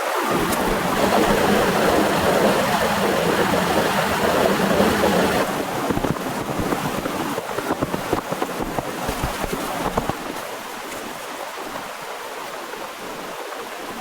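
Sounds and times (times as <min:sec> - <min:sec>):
torrential rain: 0:00.0 - 0:10.9
heavy raindrops striking: 0:00.3 - 0:08.8.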